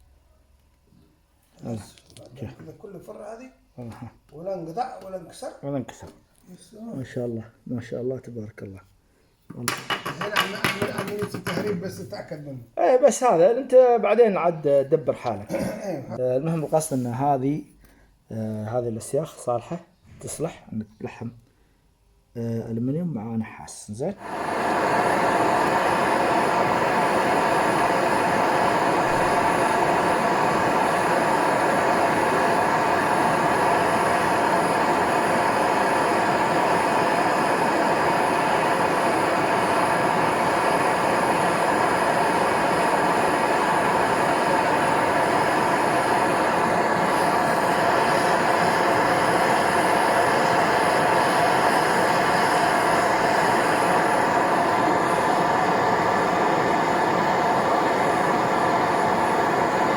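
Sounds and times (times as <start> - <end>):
torch hissing: 9.6 - 12.0, 24.1 - 59.9.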